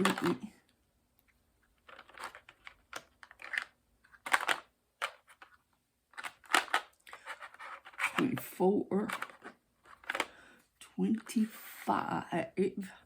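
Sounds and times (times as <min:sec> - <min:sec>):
scratchy clicks and rustles: 0:01.7 - 0:08.4.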